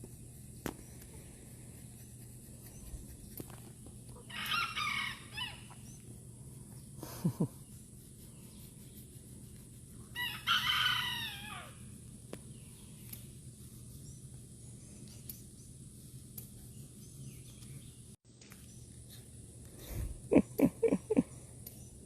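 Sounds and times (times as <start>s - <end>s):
rooster crowing: 4.2s - 5.8s, 10.2s - 11.8s.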